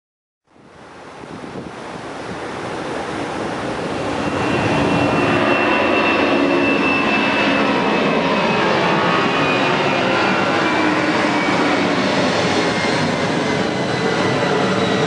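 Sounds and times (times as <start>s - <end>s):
wind on microphone: 0.5s - 8.0s
high engine whine: 0.8s - 15.0s
jet engines spooling up: 3.0s - 15.0s.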